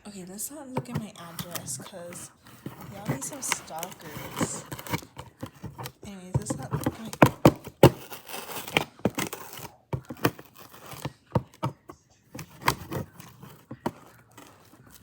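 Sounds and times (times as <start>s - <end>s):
package tearing and crinkling: 2.8s - 6.0s, 6.7s - 11.3s.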